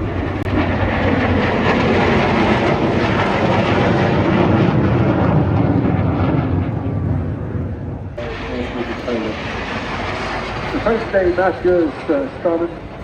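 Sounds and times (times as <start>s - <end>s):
jet engine roaring: 0.0s - 13.0s.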